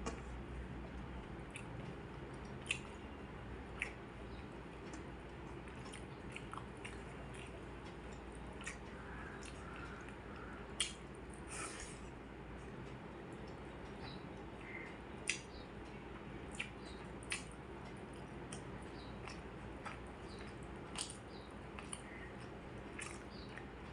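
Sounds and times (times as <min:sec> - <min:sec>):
mouth clicks and smacks: 0:00.0 - 0:03.1, 0:03.7 - 0:04.0, 0:04.8 - 0:12.0, 0:13.4 - 0:15.7, 0:16.5 - 0:23.7
person chewing food: 0:00.0 - 0:03.1, 0:03.7 - 0:12.0, 0:16.5 - 0:23.9
low steady hum: 0:00.0 - 0:23.9.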